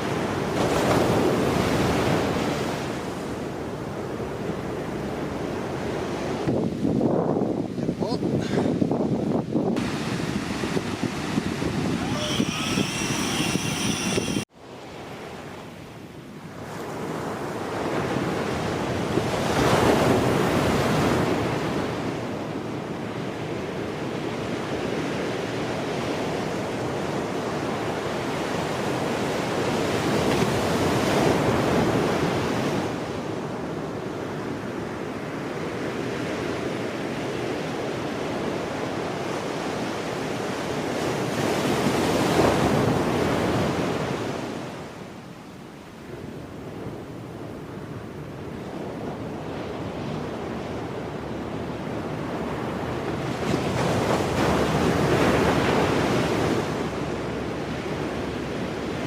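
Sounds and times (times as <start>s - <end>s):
strong wind: 6.5s - 14.5s.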